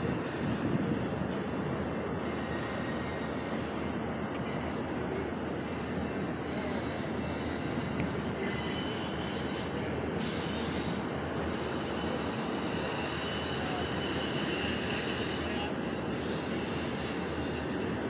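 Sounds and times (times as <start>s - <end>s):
faint wheel squeal: 5.7s - 18.0s.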